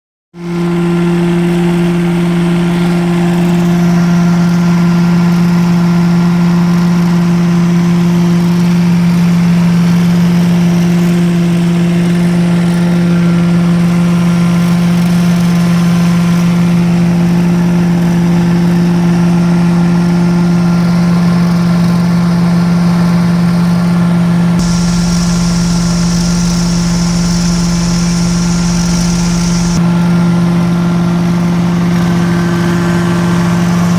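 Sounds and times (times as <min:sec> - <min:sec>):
truck-mount cleaning unit humming: 0:24.3 - 0:29.8
deep rumble: 0:24.6 - 0:29.8
high hiss: 0:24.6 - 0:29.8.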